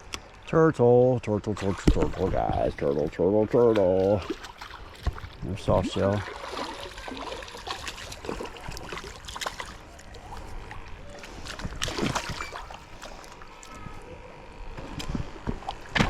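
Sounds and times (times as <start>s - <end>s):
light water splashing: 1.6s - 13.9s.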